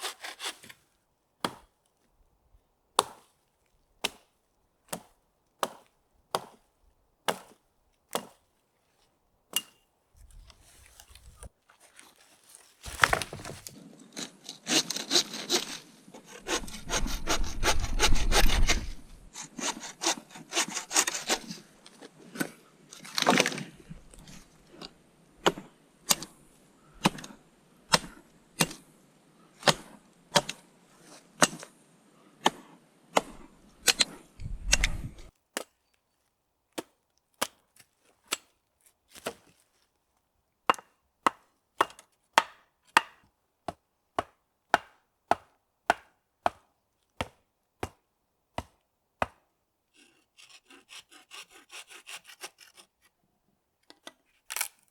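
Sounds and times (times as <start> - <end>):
wood chopping strikes: 0.0 - 0.8, 1.4 - 1.8, 3.0 - 3.4, 4.0 - 8.5, 9.5 - 9.8, 12.8 - 13.8, 40.7 - 48.0, 48.6 - 49.4.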